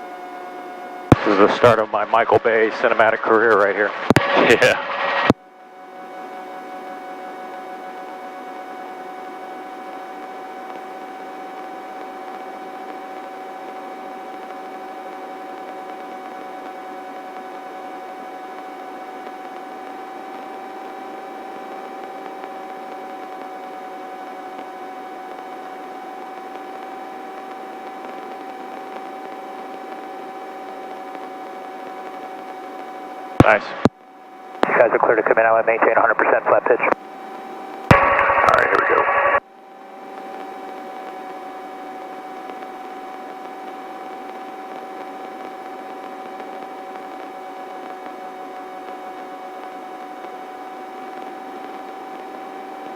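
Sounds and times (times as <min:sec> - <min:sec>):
helicopter whine through intercom: 0:01.2 - 0:05.1, 0:33.4 - 0:33.9, 0:34.6 - 0:37.0, 0:37.9 - 0:39.4.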